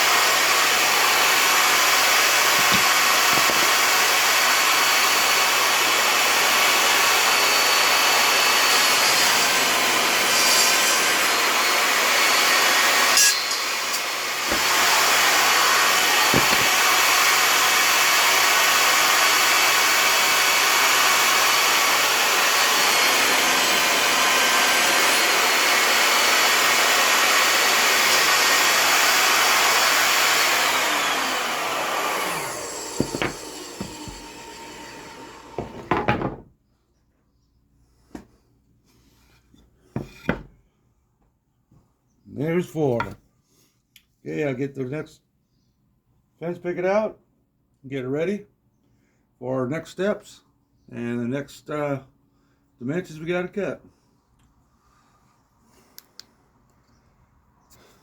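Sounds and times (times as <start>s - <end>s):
table saw ripping wood: 0.0s - 36.5s
wood knocking: 2.5s - 3.7s, 16.3s - 16.8s, 33.0s - 34.3s, 35.6s - 36.5s.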